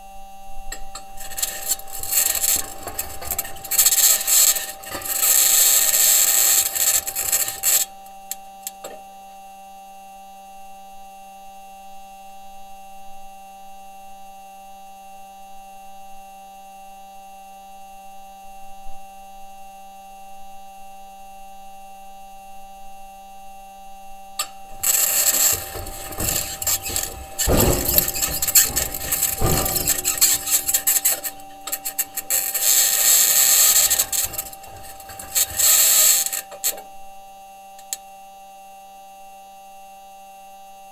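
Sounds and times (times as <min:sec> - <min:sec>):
rover wheels grinding and scraping: 0:00.7 - 0:09.0, 0:24.4 - 0:37.0
steady electrical hum: 0:00.8 - 0:08.9, 0:24.4 - 0:36.9.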